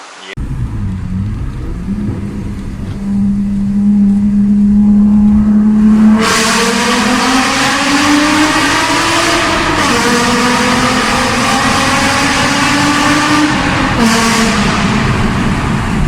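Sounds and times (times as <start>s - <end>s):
car engine accelerating: 0.3s - 16.0s.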